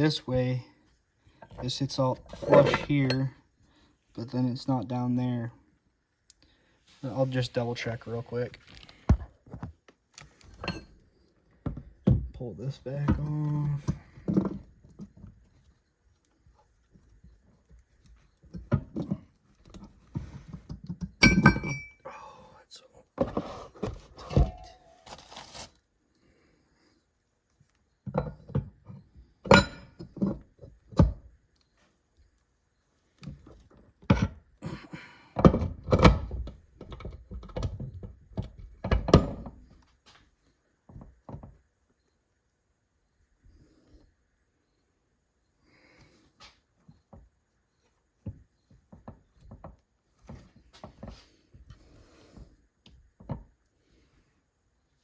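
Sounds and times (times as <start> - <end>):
metal knocks and clinks: 2.3 - 3.4, 21.1 - 22.0.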